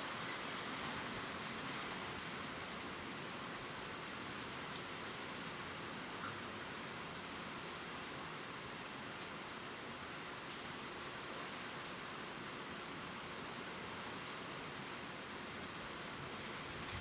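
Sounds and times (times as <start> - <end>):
rain falling on leaves: 0.0 - 17.0.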